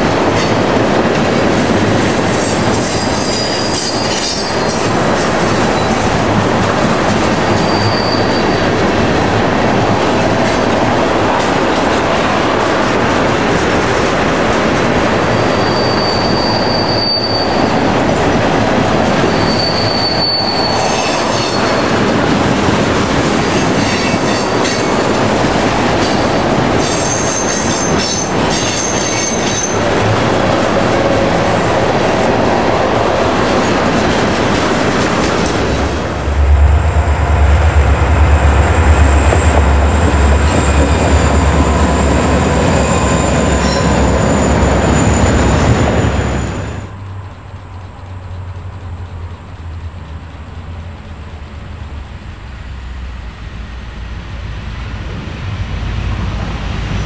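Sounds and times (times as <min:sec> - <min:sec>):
train wheels rumbling on rails: 0:00.0 - 0:57.0
high wheel squeals: 0:02.8 - 0:04.8, 0:07.2 - 0:08.8, 0:15.3 - 0:17.9, 0:19.2 - 0:22.0, 0:39.0 - 0:47.0
diesel locomotive engine throb: 0:29.4 - 0:57.0
steady high whine: 0:31.6 - 0:57.0.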